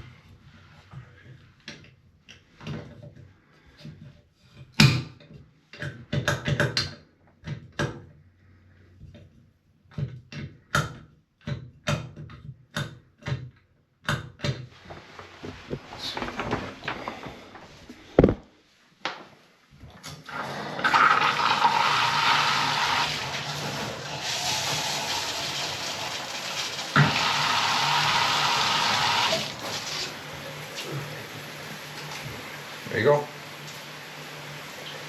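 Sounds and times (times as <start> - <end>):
water rushing from spout: 20.4 - 35.0.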